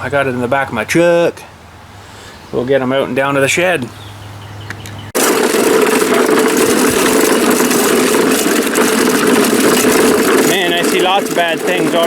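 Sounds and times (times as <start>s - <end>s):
engine running: 4.8s - 12.0s.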